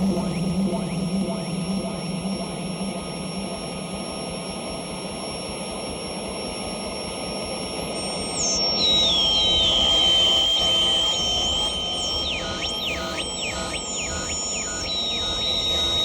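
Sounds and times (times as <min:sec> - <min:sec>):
high whining tones: 0:08.2 - 0:16.0.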